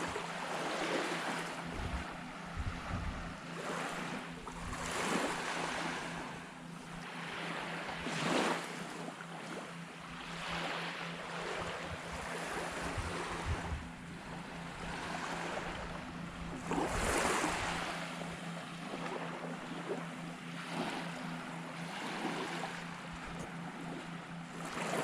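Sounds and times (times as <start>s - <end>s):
small waves washing onto beach: 0.0s - 25.0s
wind buffeting microphone: 1.6s - 3.4s, 12.0s - 14.0s.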